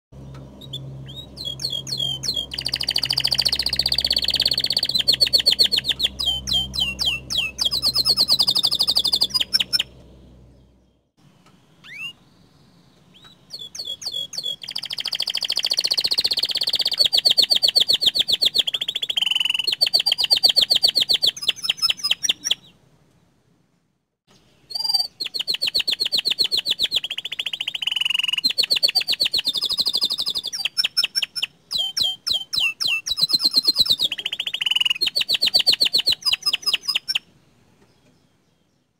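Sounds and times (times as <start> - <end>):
low steady hum: 0.2 - 13.4
canary singing trills: 0.2 - 22.8, 24.3 - 38.9.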